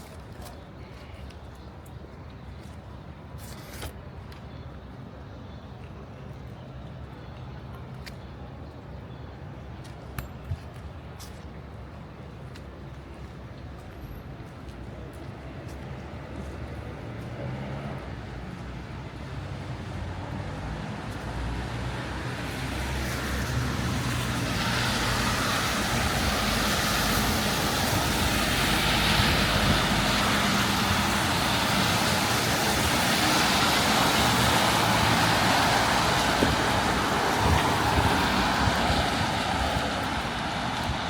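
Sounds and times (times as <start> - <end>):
tyre hiss on wet road: 22.6 - 41.0.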